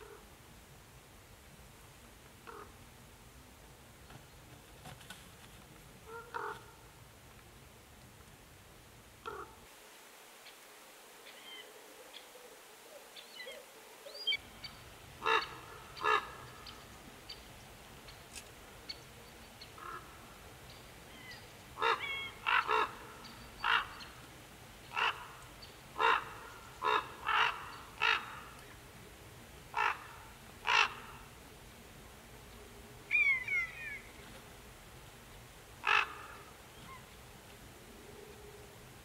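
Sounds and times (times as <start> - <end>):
short bird calls: 21.1 - 24.2, 33.1 - 34.2.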